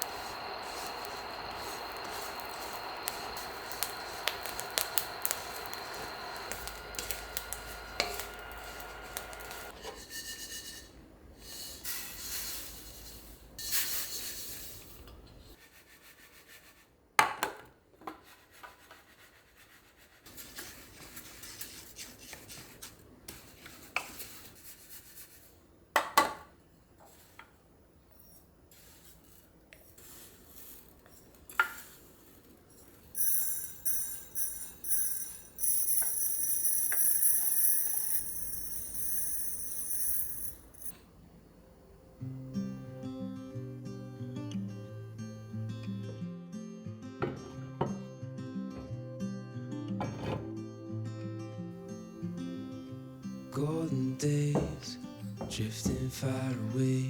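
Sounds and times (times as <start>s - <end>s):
steady hum: 0.0s - 9.8s
dishes and utensils scraping: 0.0s - 15.1s
sharp clinks: 32.7s - 40.9s.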